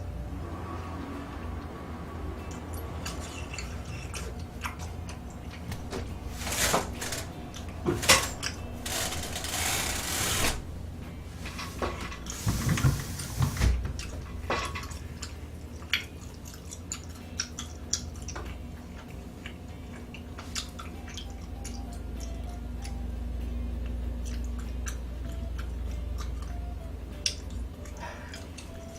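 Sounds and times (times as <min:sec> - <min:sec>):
wet chewing: 0:02.4 - 0:06.4, 0:13.9 - 0:23.2, 0:23.8 - 0:28.9.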